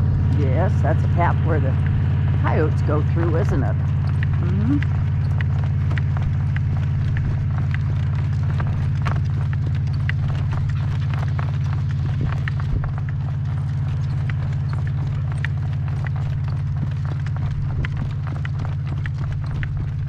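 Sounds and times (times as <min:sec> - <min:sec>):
horse hoofbeats clip-clopping: 0:00.0 - 0:20.0
wind buffeting the microphone: 0:11.6 - 0:13.3.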